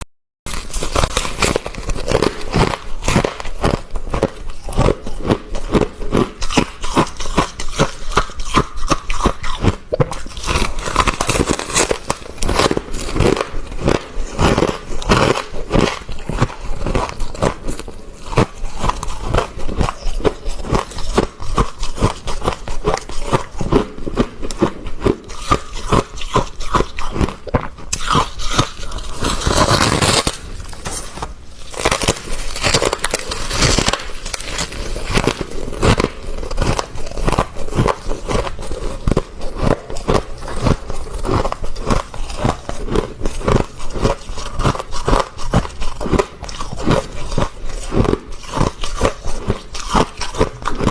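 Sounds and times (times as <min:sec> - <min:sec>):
frost crunching: 0:00.5 - 0:50.9
scraping frost: 0:28.6 - 0:36.0.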